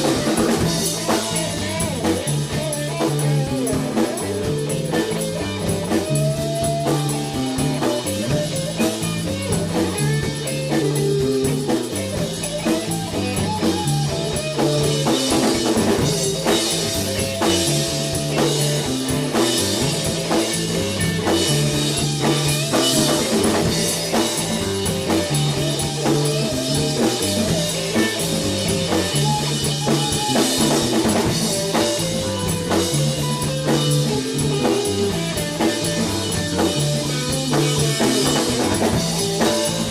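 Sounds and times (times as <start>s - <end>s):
drum kit: 0.0s - 39.9s
guitar: 0.0s - 39.9s.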